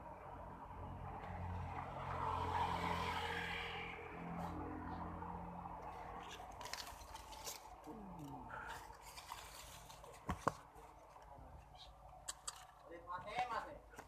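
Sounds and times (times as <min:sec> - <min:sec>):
vehicle passing: 0:00.0 - 0:11.2
small clicks and rustles: 0:06.2 - 0:12.9.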